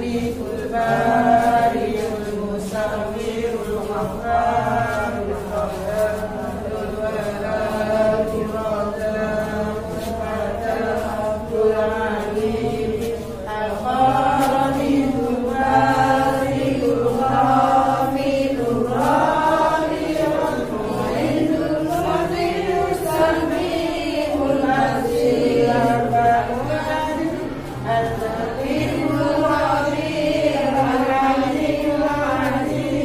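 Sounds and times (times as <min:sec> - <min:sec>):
person chanting sliding notes: 0:00.0 - 0:33.0.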